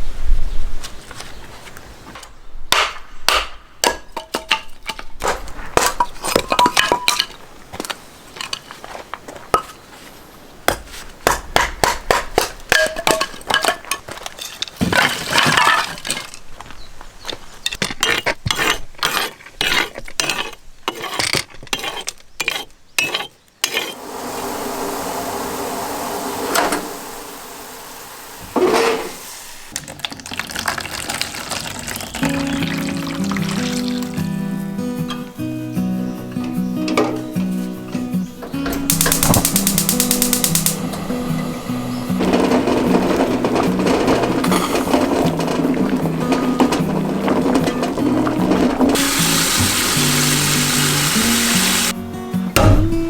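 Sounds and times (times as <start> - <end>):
dishes and utensils clattering: 3.9 - 7.4, 11.8 - 16.4, 36.2 - 40.7, 41.3 - 52.0.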